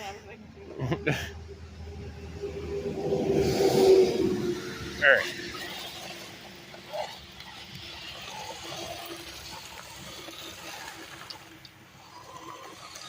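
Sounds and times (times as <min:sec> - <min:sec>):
water splashing: 0:02.6 - 0:13.0.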